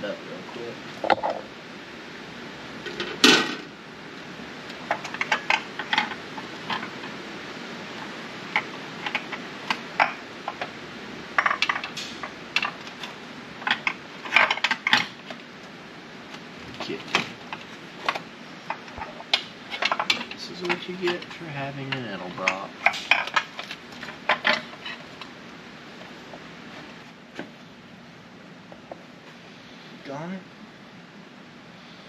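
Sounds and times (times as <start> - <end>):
metal clank: 2.8 - 3.7, 16.8 - 25.0.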